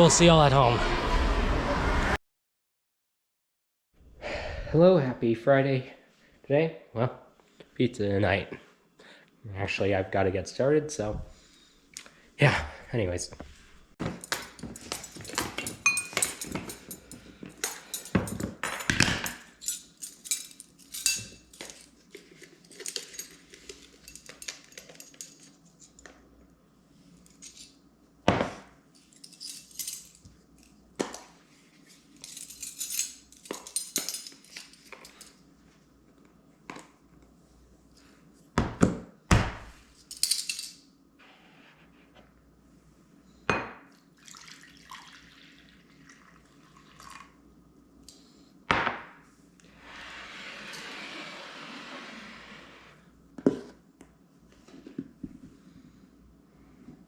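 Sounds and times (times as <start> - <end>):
dishes and utensils clinking: 14.0 - 25.6.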